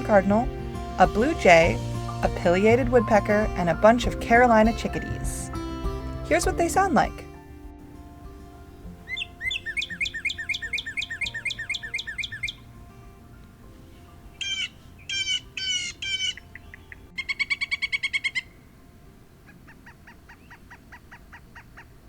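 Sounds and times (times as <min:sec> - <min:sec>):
cardinal whistling song: 0:00.0 - 0:06.8, 0:09.1 - 0:12.8, 0:13.4 - 0:18.8
soft background music: 0:00.0 - 0:20.9
faint run of bird notes: 0:09.0 - 0:12.8, 0:13.8 - 0:21.5
harsh blue jay calls: 0:09.1 - 0:12.7, 0:14.3 - 0:18.7, 0:19.4 - 0:22.0
woodpecker calls: 0:09.1 - 0:12.7, 0:14.3 - 0:18.7, 0:19.4 - 0:22.0.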